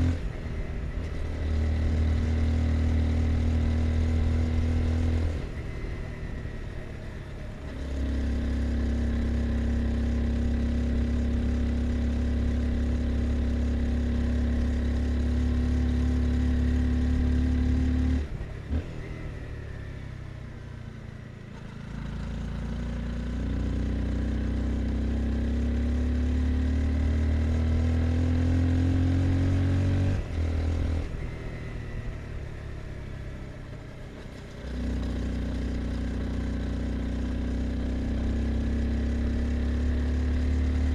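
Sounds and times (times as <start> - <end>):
motorcycle engine revving: 23.5 - 40.9.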